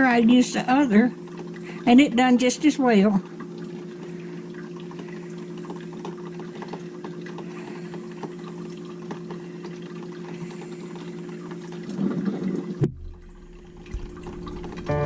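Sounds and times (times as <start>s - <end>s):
coffee maker gurgling and bubbling: 0.0s - 14.9s
steady low hum: 12.8s - 15.0s.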